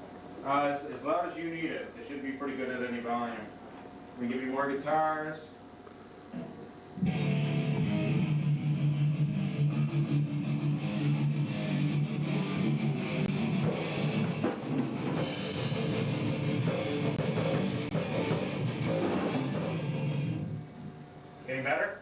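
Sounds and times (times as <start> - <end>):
bass guitar: 7.0 - 20.6
distorted electric guitars: 7.0 - 20.6
drum kit: 7.0 - 20.6.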